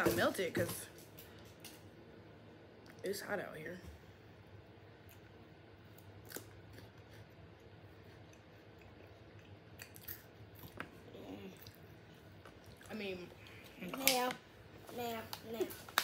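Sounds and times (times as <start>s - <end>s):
chewing wafer crunches: 5.0s - 11.8s.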